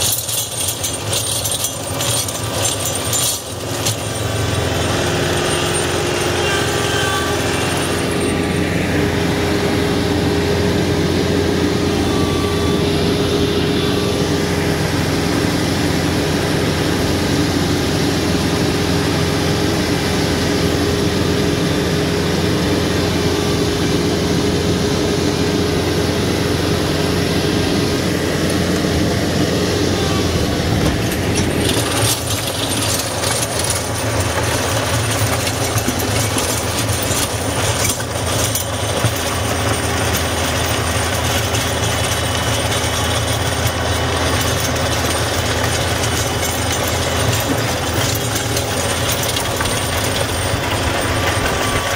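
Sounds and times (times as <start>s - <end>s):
tractor diesel engine under load: 0.0s - 51.9s.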